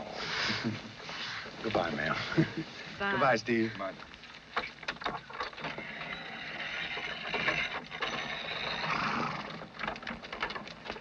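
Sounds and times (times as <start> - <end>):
horse-drawn wagon rattling: 3.0 - 11.0
clatter: 4.6 - 11.0.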